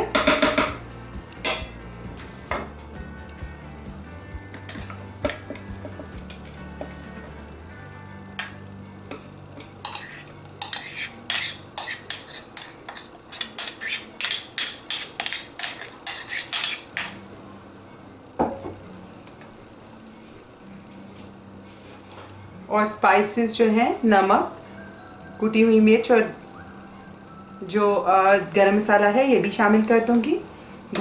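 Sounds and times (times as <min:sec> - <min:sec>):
metal utensil clinking in bowl: 0:08.4 - 0:08.7, 0:09.6 - 0:17.2.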